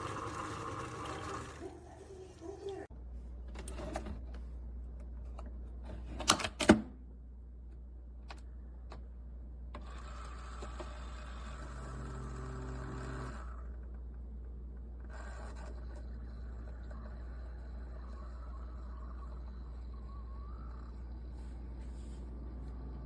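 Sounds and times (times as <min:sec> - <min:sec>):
coffee maker mechanical hum: 0:00.0 - 0:02.8, 0:09.6 - 0:23.0.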